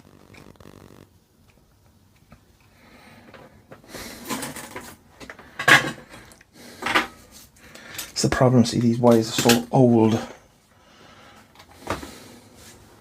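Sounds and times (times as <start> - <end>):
tools and wires scraping and clattering: 3.2 - 10.3.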